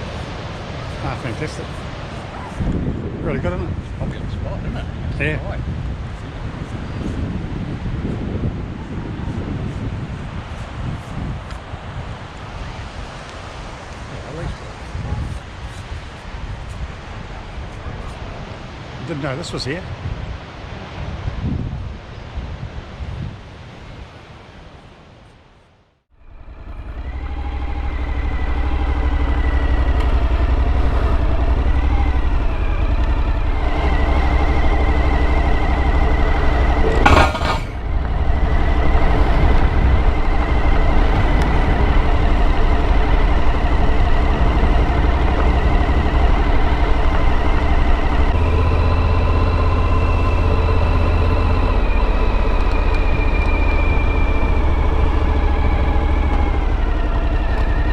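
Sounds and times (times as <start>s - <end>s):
road and wind noise: 0.0s - 57.9s
motorcycle engine running: 26.2s - 57.9s.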